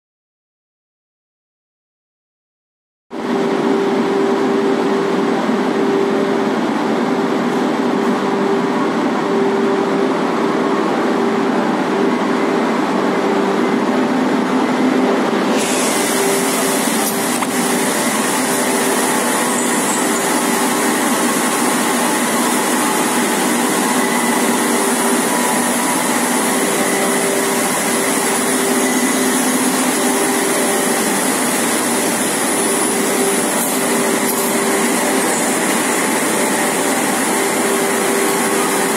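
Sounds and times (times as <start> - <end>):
machinery humming: 3.1 - 38.9.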